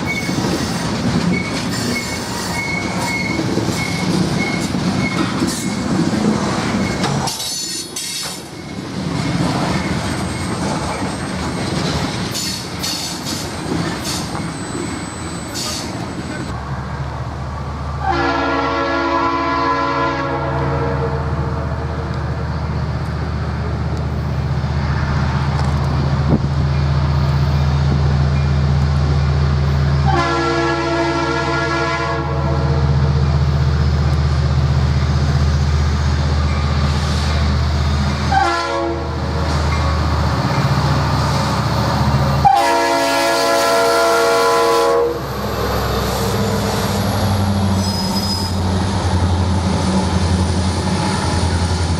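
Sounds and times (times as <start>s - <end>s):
diesel locomotive rumbling: 0.0s - 51.9s
train air horn blasts: 18.0s - 21.9s, 30.0s - 33.0s, 38.3s - 39.3s, 42.4s - 45.2s.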